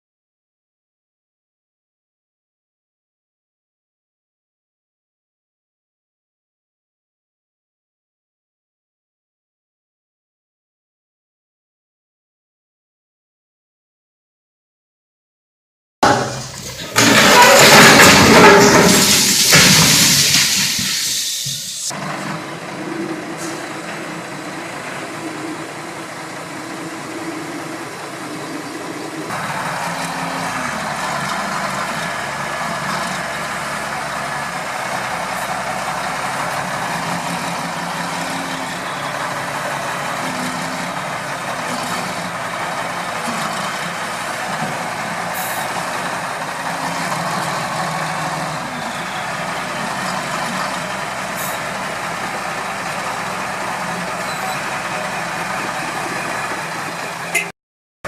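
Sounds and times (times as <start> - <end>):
heavy diesel machinery running: 16.0 - 57.5.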